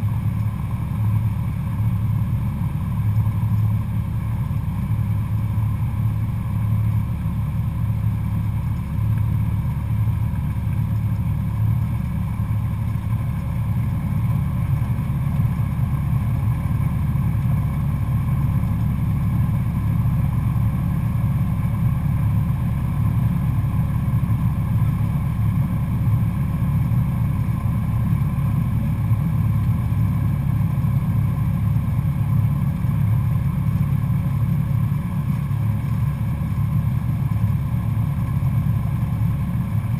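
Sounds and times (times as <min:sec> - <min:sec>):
airplane engine and propeller drone: 0:00.0 - 0:39.9.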